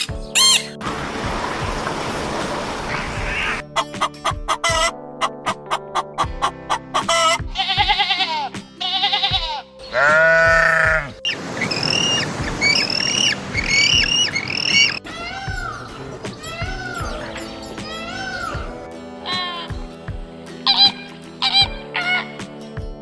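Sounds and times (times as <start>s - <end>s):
background music: 0.0s - 23.0s
animal bleating: 7.2s - 11.2s, 12.9s - 19.6s.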